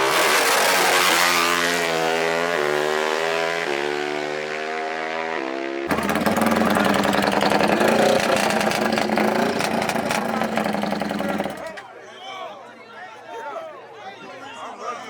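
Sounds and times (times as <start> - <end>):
engine revving through gears: 0.0 - 2.0, 5.9 - 11.8
loud engine at full throttle: 0.0 - 4.8, 5.8 - 11.8.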